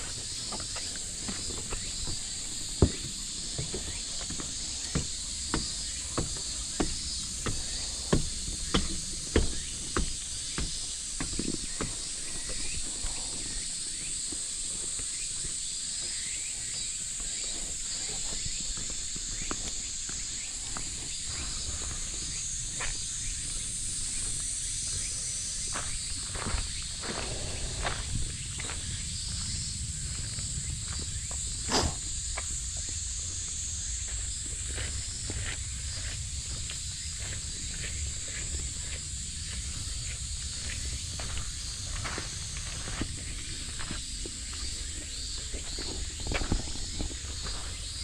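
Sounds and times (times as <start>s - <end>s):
footsteps walking: 0.0s - 12.9s, 32.4s - 47.9s
cicada chorus drone: 0.0s - 48.0s.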